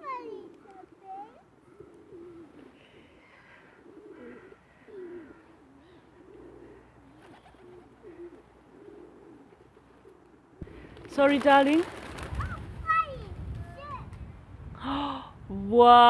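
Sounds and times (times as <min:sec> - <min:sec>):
pigeons cooing: 0:00.0 - 0:12.8.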